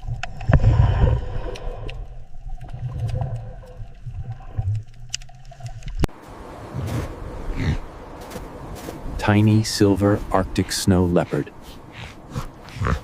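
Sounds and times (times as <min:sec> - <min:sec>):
sea lion grunting and barking: 0:06.7 - 0:07.9, 0:11.2 - 0:13.0.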